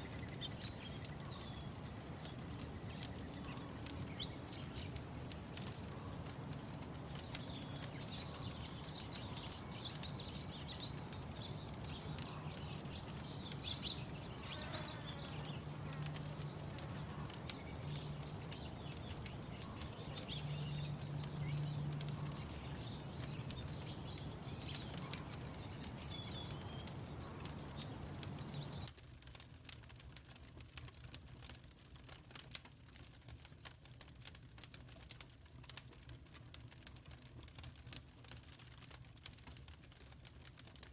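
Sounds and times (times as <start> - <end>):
low steady hum: 0.0 - 28.9
small birds chirping: 0.0 - 28.9
wood fire crackling: 0.0 - 40.9.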